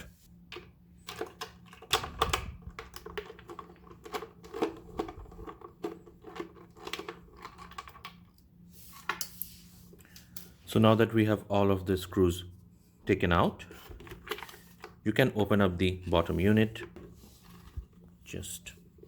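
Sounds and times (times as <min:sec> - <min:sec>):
small clicks and scrapes: 0:00.5 - 0:10.5.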